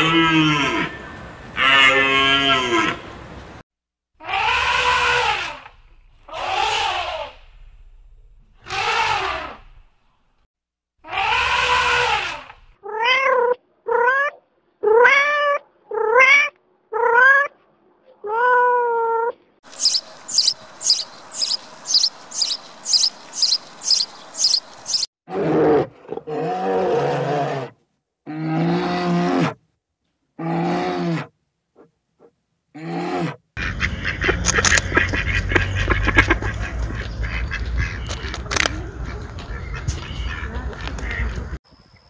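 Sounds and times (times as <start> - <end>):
noisy animal call: 4.2 - 5.7, 6.3 - 7.4, 8.6 - 9.6, 11.0 - 17.5, 18.3 - 27.7
low drawn-out calls: 19.7 - 25.1
sparrows chirping: 19.7 - 25.1, 33.8 - 41.3.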